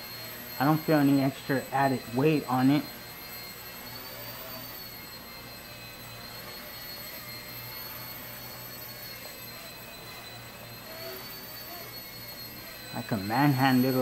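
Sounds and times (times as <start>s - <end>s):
rc helicopter motor whine: 0.0s - 14.0s.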